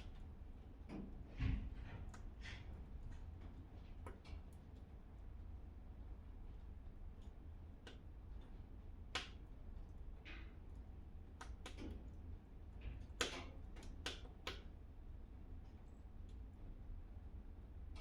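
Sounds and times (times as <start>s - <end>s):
wood fire crackling and popping: 9.1s - 9.4s.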